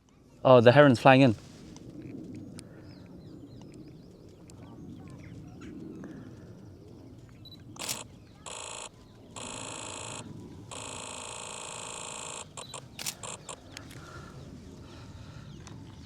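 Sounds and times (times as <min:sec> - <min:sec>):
faint birdsong: 0:02.4 - 0:16.0
sharp click: 0:07.8 - 0:08.0, 0:12.2 - 0:13.9
rapid camera shutter bursts: 0:07.8 - 0:13.7.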